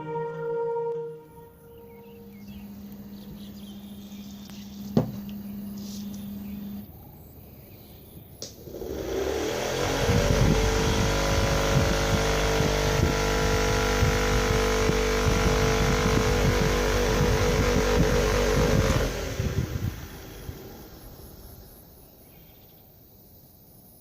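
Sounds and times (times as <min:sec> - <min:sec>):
electric fan motor humming: 0:00.0 - 0:07.6, 0:08.2 - 0:22.4.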